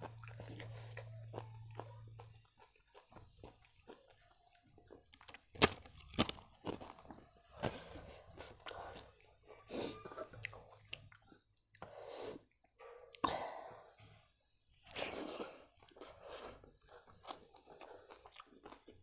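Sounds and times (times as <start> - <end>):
crunchy chewing: 0.0 - 13.2, 14.7 - 19.0
sharp crunches: 5.3 - 7.0.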